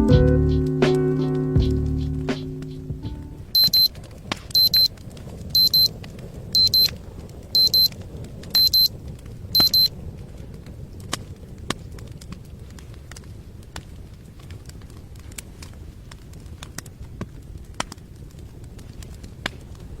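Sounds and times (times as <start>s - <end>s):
electronic alarm double beeps: 3.6s - 3.9s, 4.6s - 4.9s, 5.6s - 5.9s, 6.6s - 6.9s, 7.6s - 7.9s, 8.6s - 8.9s, 9.6s - 9.9s.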